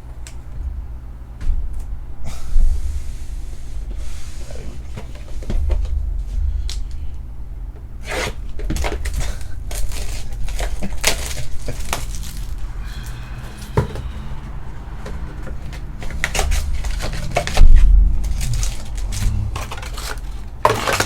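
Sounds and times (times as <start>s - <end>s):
cardboard boxes tapping and rustling: 18.3s - 21.0s.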